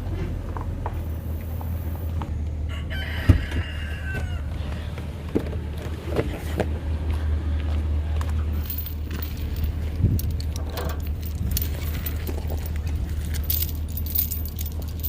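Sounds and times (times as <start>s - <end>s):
truck engine low rumble: 0.0s - 15.0s
loose rattles: 8.6s - 15.0s.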